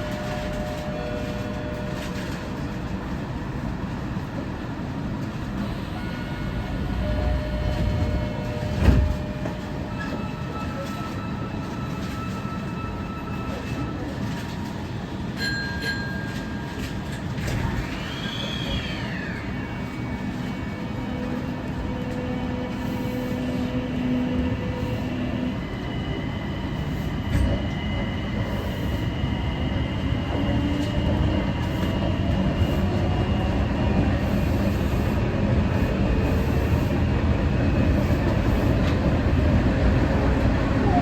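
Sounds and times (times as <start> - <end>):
train rumble: 0.0 - 41.0
train motor tones: 5.6 - 10.8.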